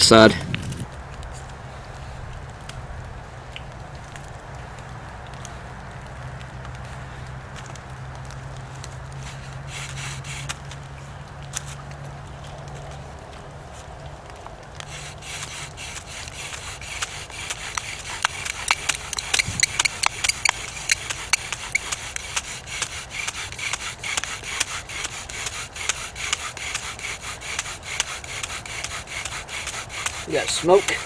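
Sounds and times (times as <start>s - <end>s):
bow drill rubbing strokes: 14.9s - 31.0s.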